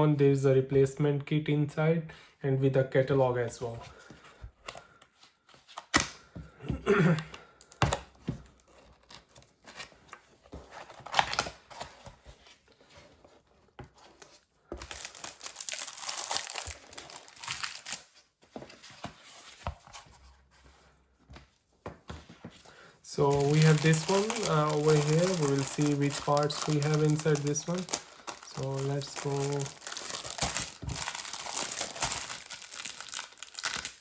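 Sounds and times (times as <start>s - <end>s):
packaging crinkling and tearing: 14.2s - 18.3s, 23.1s - 34.0s.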